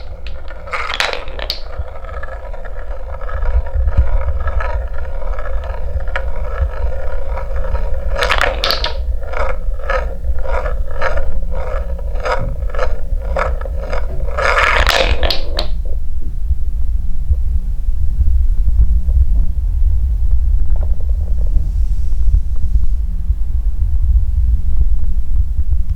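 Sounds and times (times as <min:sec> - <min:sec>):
wooden balls rolling rumble: 0:00.0 - 0:16.3.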